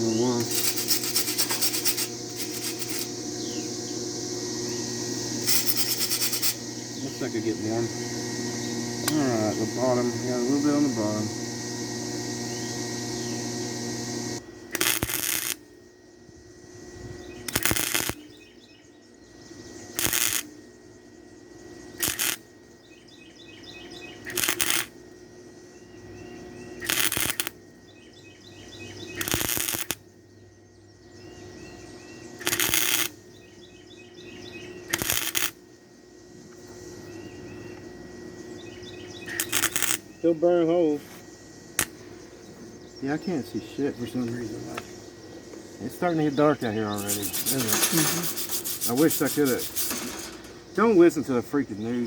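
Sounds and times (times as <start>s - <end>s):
birds chirping: 0.0s - 14.5s, 16.7s - 20.0s, 22.6s - 24.4s, 25.0s - 27.0s, 27.6s - 29.4s, 30.0s - 35.0s, 35.6s - 52.0s
welder sizzling bursts: 0.0s - 15.7s, 17.4s - 18.4s, 19.9s - 20.6s, 21.9s - 22.5s, 24.2s - 25.0s, 26.8s - 27.6s, 29.1s - 30.0s, 32.4s - 33.3s, 34.9s - 35.6s, 39.2s - 41.0s, 45.8s - 52.0s.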